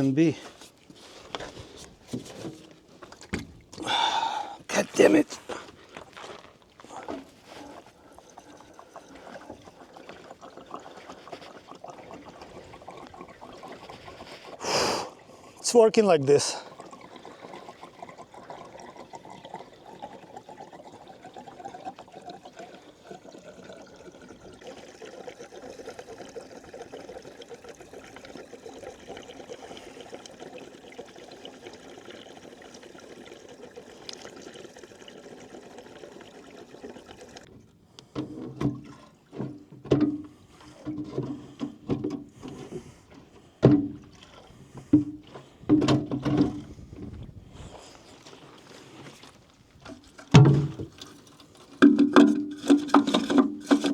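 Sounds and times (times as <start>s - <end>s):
fuel pouring into a tank: 0.0s - 53.9s
hollow knocks of a fuel can: 1.3s - 3.8s, 38.0s - 47.2s, 49.8s - 53.9s.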